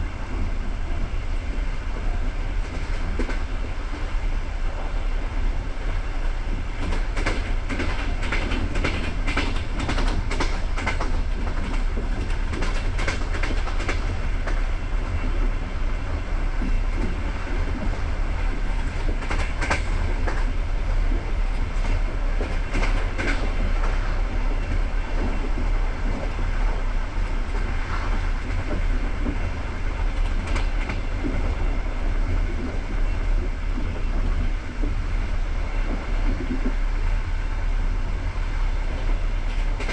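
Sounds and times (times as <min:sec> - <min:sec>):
train carriage rumbling: 0:00.0 - 0:39.9
wheels clicking over rail joints: 0:06.5 - 0:15.6, 0:16.6 - 0:26.4.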